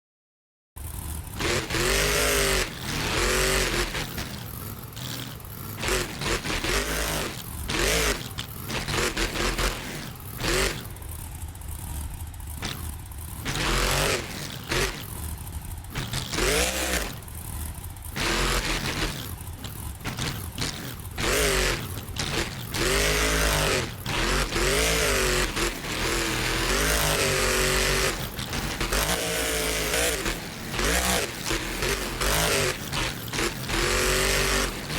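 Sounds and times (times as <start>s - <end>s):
truck engine revving: 0.8s - 34.9s.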